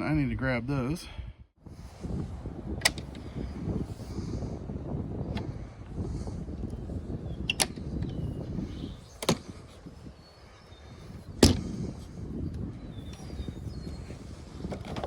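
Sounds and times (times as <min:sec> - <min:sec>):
knocks and clicks of nest box: 0:11.4 - 0:11.7.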